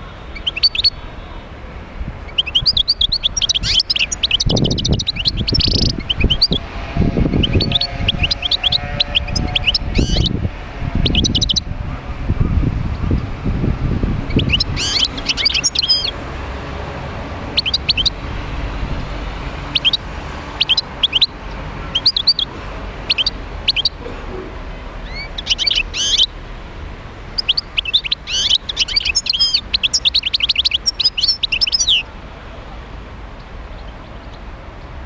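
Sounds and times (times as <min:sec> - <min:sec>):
goldfinch twittering song: 0:00.3 - 0:01.0, 0:02.2 - 0:06.7, 0:07.3 - 0:10.4, 0:11.0 - 0:11.7, 0:14.2 - 0:16.2, 0:17.5 - 0:18.2, 0:19.7 - 0:22.5, 0:25.0 - 0:26.3, 0:27.3 - 0:32.1.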